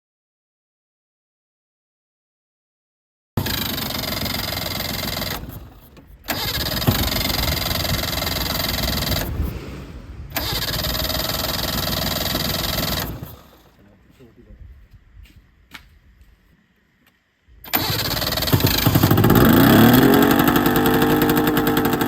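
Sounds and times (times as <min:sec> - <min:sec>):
two-stroke engine turning over: 0:03.4 - 0:09.5, 0:10.3 - 0:13.8, 0:17.6 - 0:22.0.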